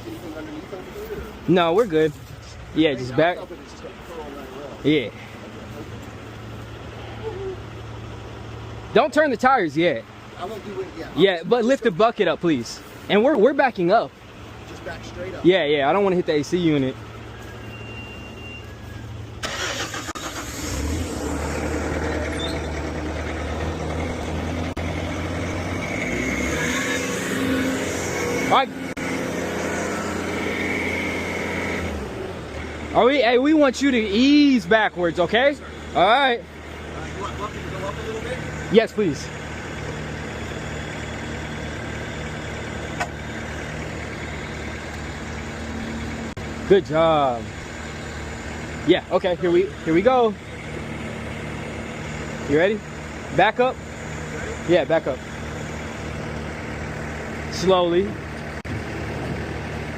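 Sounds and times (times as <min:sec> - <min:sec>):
heavy machine engine revving: 0:19.4 - 0:59.9.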